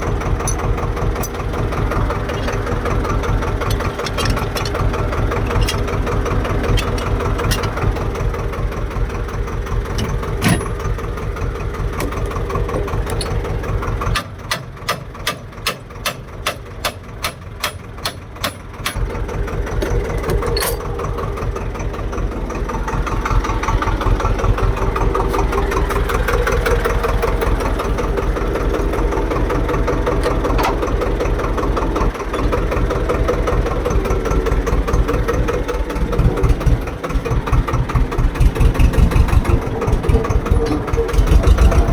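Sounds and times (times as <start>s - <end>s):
evenly spaced engine knocks: 0.0s - 41.9s
tractor diesel engine chugging: 0.0s - 41.9s.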